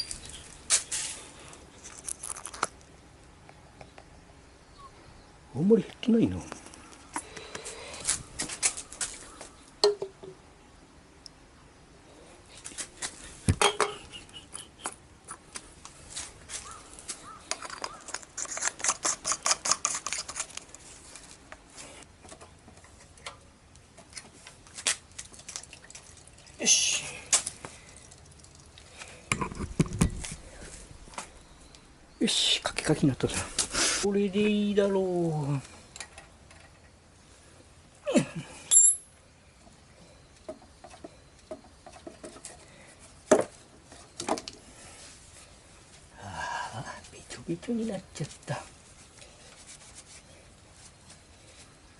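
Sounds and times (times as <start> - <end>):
hand tool scraping metal: 17.5 - 20.6
metallic clink: 38.7 - 39.1.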